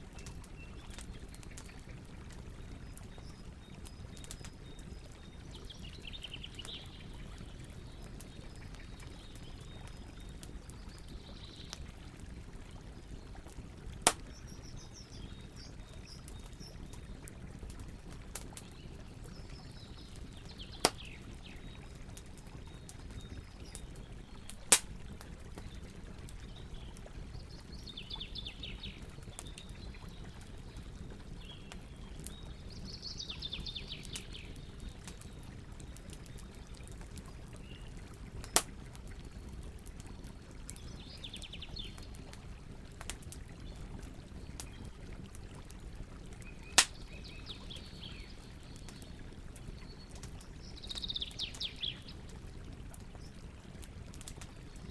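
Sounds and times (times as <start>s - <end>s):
campfire wood pops: 14.0s - 14.5s, 20.7s - 21.2s, 23.7s - 25.7s, 38.4s - 38.8s, 46.7s - 47.1s.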